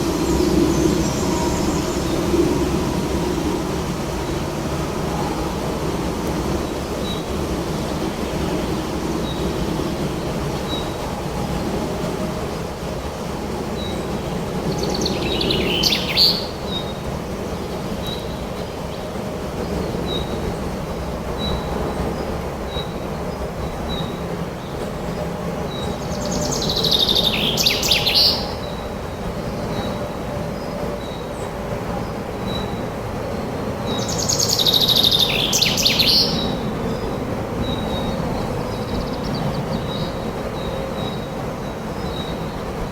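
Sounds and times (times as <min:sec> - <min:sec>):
wind rushing: 0:00.0 - 0:13.1
songbird singing: 0:00.0 - 0:42.9.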